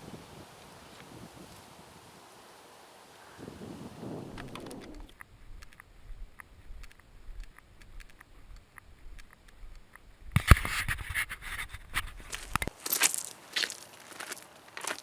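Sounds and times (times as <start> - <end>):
light clicks and crackles: 4.3 - 10.7
crunching and rustling: 12.1 - 15.0.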